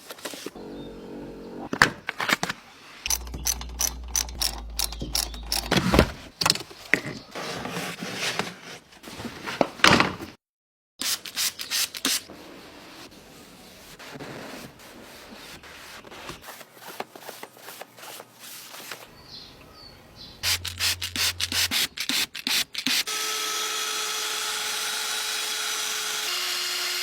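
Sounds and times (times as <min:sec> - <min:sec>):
steady low hum: 0:03.0 - 0:06.3
clunks and clicks: 0:03.1 - 0:06.7.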